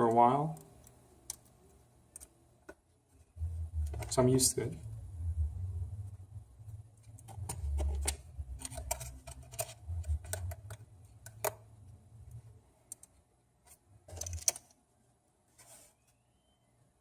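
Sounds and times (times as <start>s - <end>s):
low rumble: 3.4s - 8.6s.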